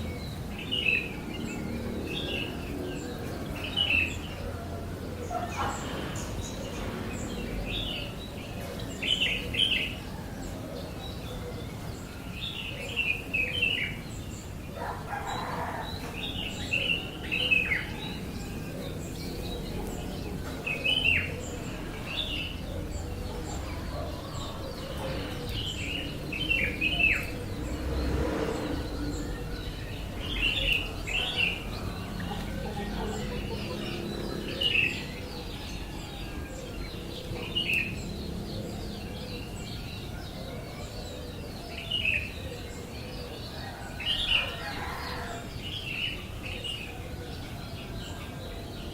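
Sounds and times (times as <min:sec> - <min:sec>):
bird chirping: 0:00.0 - 0:48.9.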